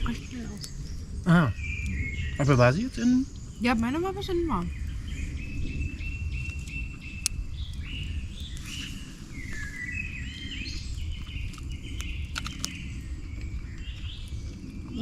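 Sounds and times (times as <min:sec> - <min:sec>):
songbirds singing: 0:00.0 - 0:15.0
steady low rumble: 0:00.0 - 0:15.0
sharp clicks: 0:11.5 - 0:12.8.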